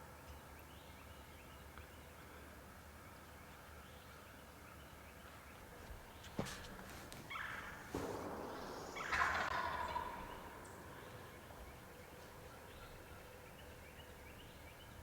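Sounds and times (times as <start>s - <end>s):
turkey gobbling: 7.2s - 13.7s.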